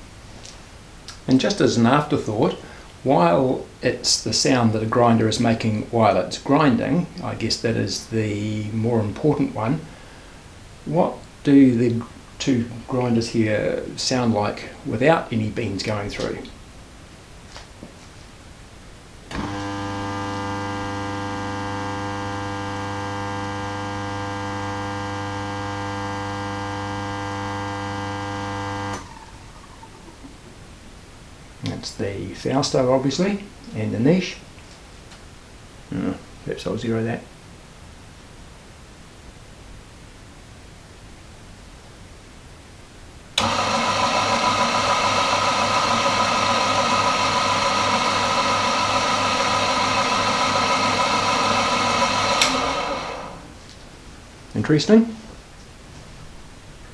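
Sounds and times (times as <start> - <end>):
coffee grinder motor humming: 19.3 - 30.0, 43.4 - 53.6.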